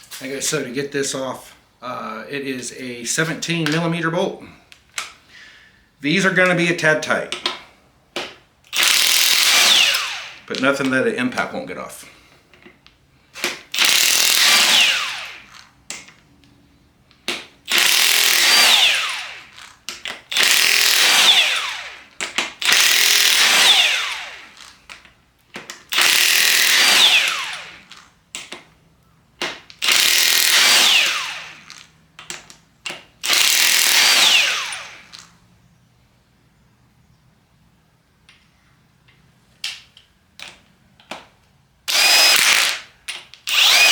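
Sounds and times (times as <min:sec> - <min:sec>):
impact wrench bursts: 0:08.2 - 0:10.8, 0:13.3 - 0:16.1, 0:17.3 - 0:25.0, 0:25.8 - 0:28.1, 0:29.4 - 0:32.0, 0:33.0 - 0:35.4, 0:41.9 - 0:43.9.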